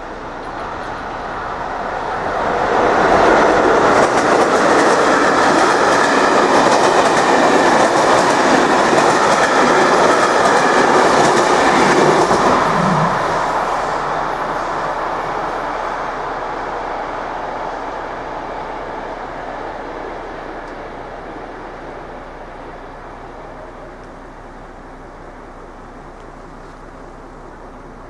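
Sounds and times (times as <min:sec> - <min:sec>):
train wheels clattering over rails: 0:00.2 - 0:16.6.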